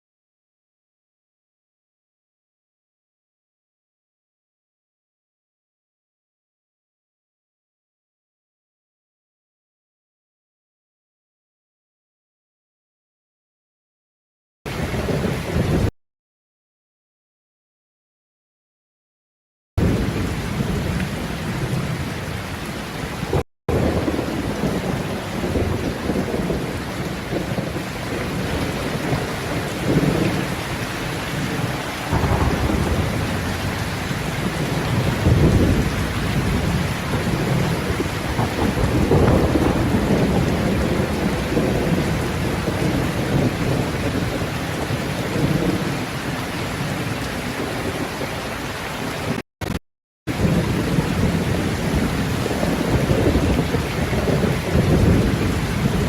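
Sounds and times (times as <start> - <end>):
heavy rain: 14.7 - 15.9, 19.8 - 56.0
low rolling thunder: 19.8 - 22.4, 23.2 - 48.4, 50.3 - 56.0.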